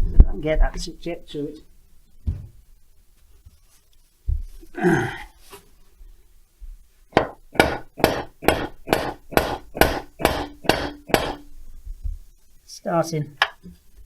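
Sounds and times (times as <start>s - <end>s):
hammer blows on metal: 7.2s - 11.5s.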